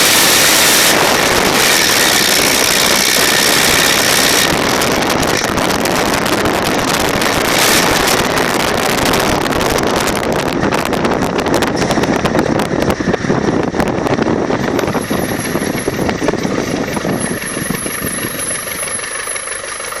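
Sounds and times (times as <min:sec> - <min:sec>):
thin high whine: 0:00.0 - 0:05.5, 0:14.8 - 0:20.0
diesel engine running rough: 0:00.0 - 0:20.0.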